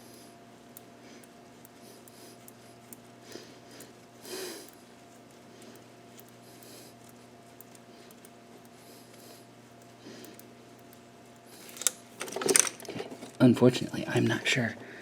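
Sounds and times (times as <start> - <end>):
electrical hum: 0.0 - 15.0
small parts ticking: 9.8 - 13.4.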